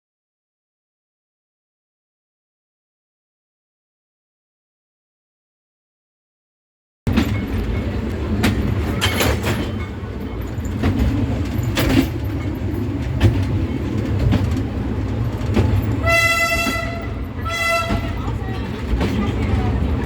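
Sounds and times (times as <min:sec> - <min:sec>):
train rumbling on rails: 0:07.1 - 0:20.0
wheels clacking: 0:07.1 - 0:20.0
train horn toot: 0:16.0 - 0:18.3.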